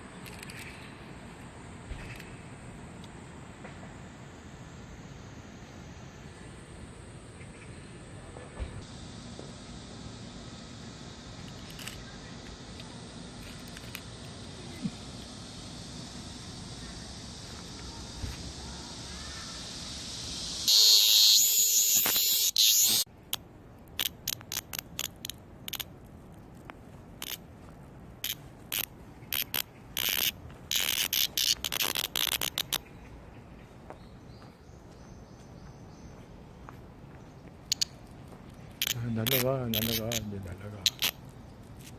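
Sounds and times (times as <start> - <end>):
high hiss of insects: 0.0 - 41.9
cicada buzzing loudly: 0.1 - 7.4, 8.8 - 23.1, 24.0 - 25.9, 27.2 - 27.5, 28.2 - 32.9, 37.6 - 38.0, 38.7 - 41.9.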